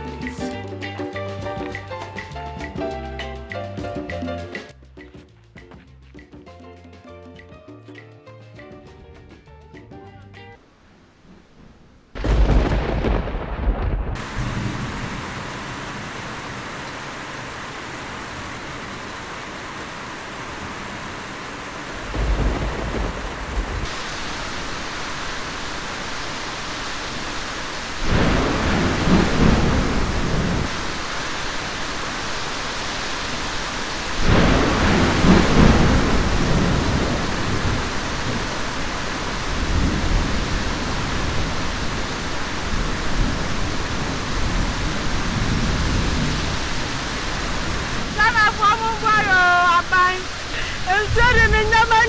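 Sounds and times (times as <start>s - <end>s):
steady rain: 0.0s - 2.5s, 10.6s - 52.0s
thunder rolling: 11.2s - 16.8s, 21.8s - 52.0s.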